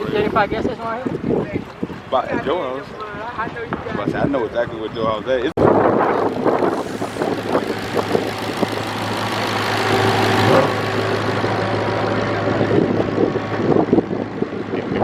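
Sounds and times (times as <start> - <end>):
car engine idling: 6.1 - 15.0.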